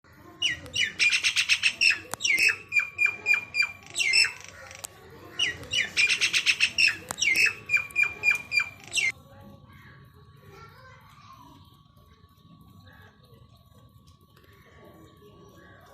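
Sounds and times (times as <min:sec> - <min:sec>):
myna calling: 0:00.4 - 0:09.2.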